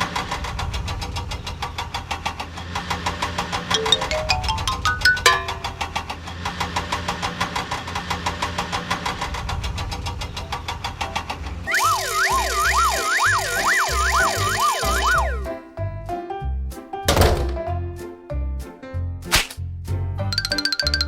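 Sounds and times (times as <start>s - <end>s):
bouncy cartoon music: 3.6s - 6.0s, 11.7s - 16.2s, 20.0s - 21.0s
rising run of notes: 3.7s - 5.8s, 11.7s - 15.6s
cartoon engine chugging: 11.7s - 15.5s.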